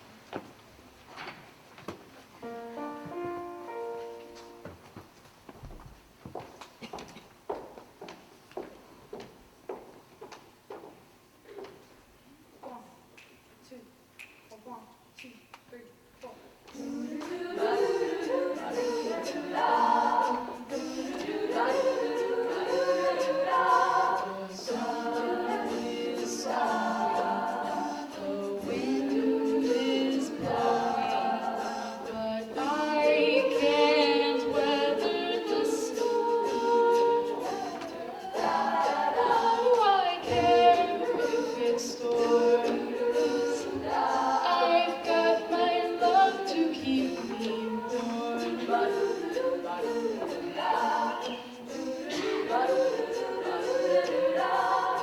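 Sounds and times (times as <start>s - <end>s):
a cappella group scat singing: 12.7s - 55.0s.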